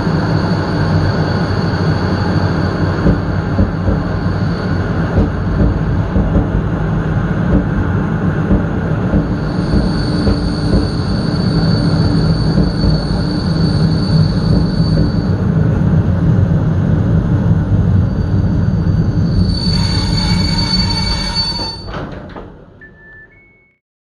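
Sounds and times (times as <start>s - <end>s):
train brake screech: 0.0s - 6.0s, 9.2s - 15.4s, 18.0s - 22.2s
train rumbling over rails: 0.0s - 22.8s.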